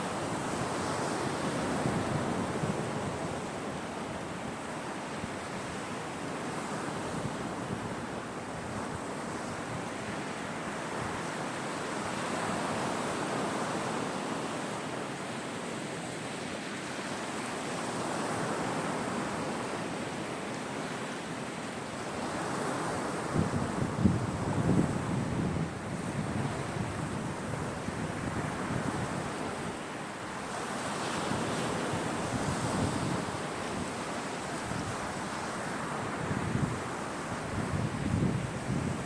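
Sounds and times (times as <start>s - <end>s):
sea waves breaking on shore: 0.0s - 39.0s
wind buffeting microphone: 23.2s - 29.8s, 31.2s - 39.0s.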